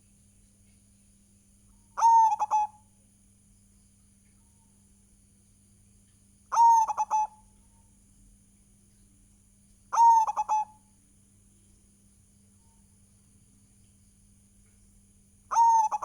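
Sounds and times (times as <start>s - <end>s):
dove cooing: 2.0s - 2.8s, 6.5s - 7.4s, 9.9s - 10.8s, 15.5s - 16.0s.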